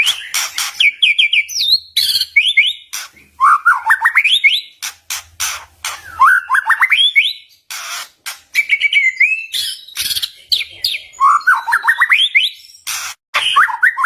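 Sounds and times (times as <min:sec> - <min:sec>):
harsh bird rattles: 0:00.0 - 0:01.3, 0:04.8 - 0:06.2, 0:07.6 - 0:08.8
bird singing whistled notes: 0:00.0 - 0:04.8, 0:06.0 - 0:07.6, 0:08.6 - 0:14.0.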